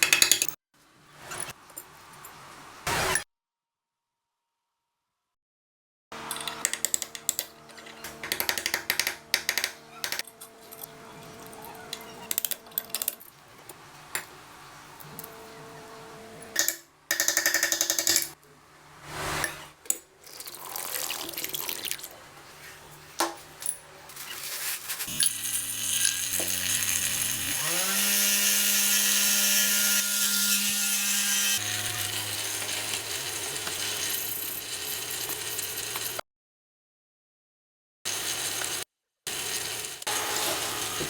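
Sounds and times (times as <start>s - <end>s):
small power-tool motor running: 25.1s - 34.5s.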